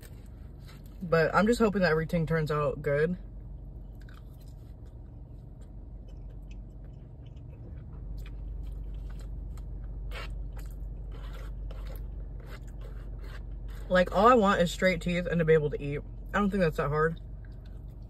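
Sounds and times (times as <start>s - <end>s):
low steady rumble: 0.0s - 18.0s
person chewing: 3.8s - 13.9s.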